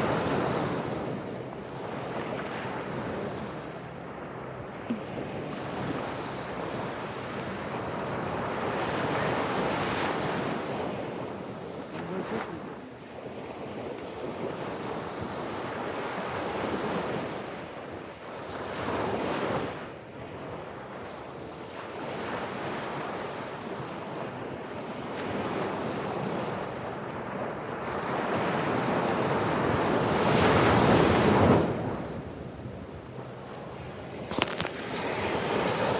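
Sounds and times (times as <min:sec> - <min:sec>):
waves breaking on shore: 0:27.4 - 0:35.9.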